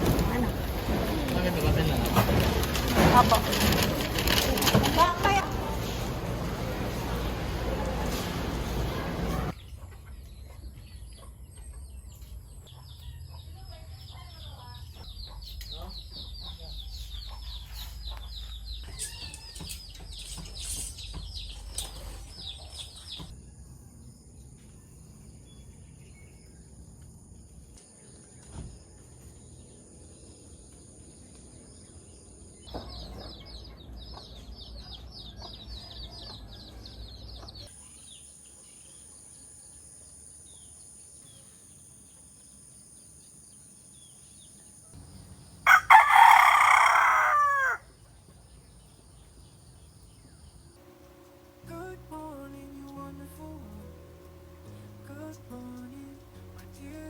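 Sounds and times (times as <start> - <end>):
small birds chirping: 9.5 - 23.4, 24.1 - 57.0
rooster crowing: 45.6 - 47.9.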